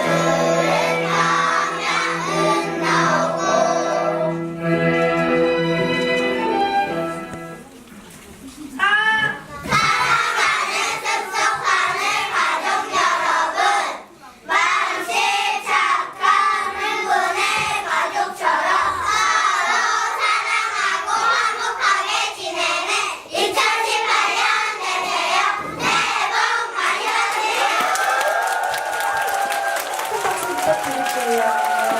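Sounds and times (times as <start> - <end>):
children singing in unison: 0.0 - 4.7, 9.7 - 27.7.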